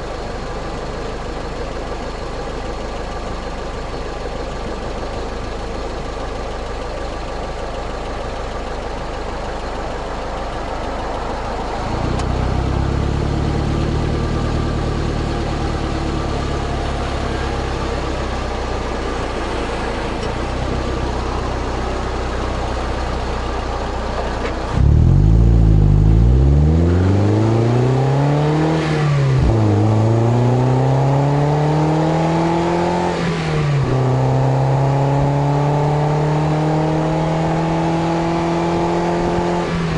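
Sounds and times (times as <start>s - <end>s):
car exhaust revving: 10.8s - 39.9s.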